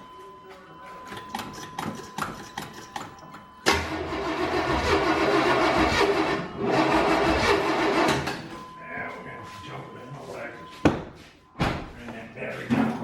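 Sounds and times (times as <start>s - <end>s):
truck engine starting and running: 3.7s - 8.5s.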